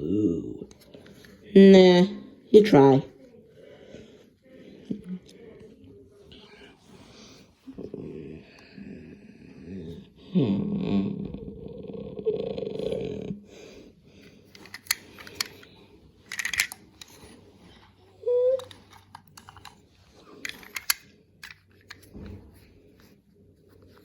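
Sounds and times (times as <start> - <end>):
toy cars clicking and knocking: 14.5 - 17.4, 18.5 - 22.4.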